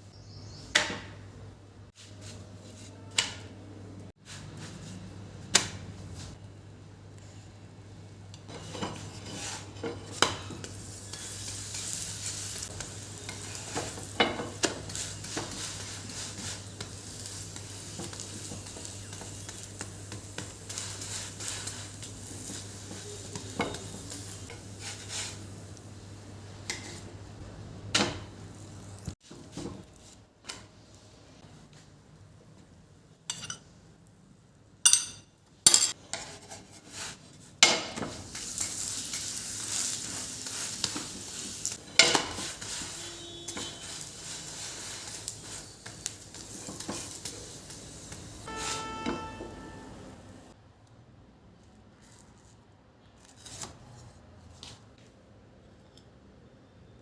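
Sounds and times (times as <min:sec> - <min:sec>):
food sizzling in a hot pan: 0:08.5 - 0:27.4, 0:37.9 - 0:50.1
metal utensil clinking on pan: 0:33.3 - 0:33.6, 0:34.9 - 0:36.0.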